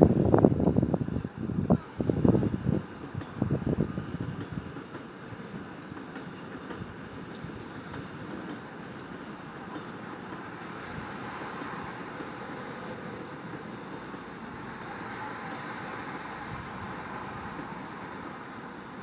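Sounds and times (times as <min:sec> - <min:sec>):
passing vehicle rumble: 0:10.7 - 0:18.9.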